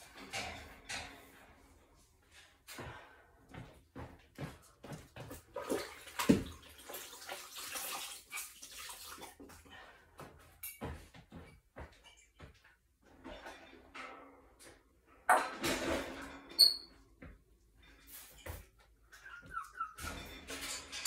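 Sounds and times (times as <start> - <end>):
knocks and clatters: 0.0 - 5.4, 10.6 - 18.8, 20.0 - 21.0.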